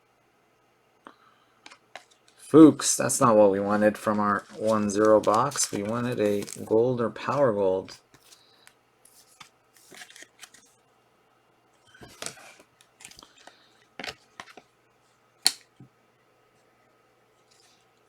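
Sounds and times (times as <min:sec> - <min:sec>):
card packs tearing and rustling: 0:03.2 - 0:08.4, 0:09.3 - 0:10.7.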